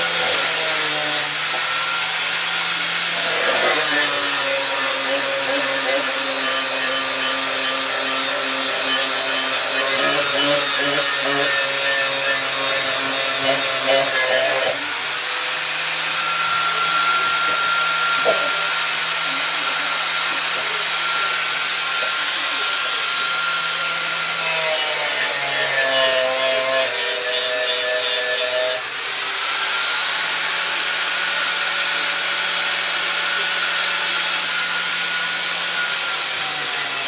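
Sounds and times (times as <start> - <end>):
electric grinder sharpening steel blade: 0.0 - 37.0.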